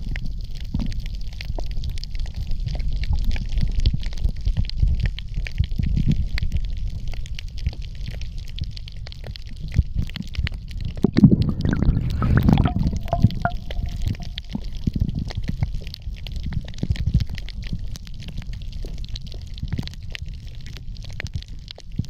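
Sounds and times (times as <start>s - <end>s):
small crackling clicks: 0.0s - 11.8s, 12.6s - 22.0s
underwater rumble: 0.0s - 22.0s.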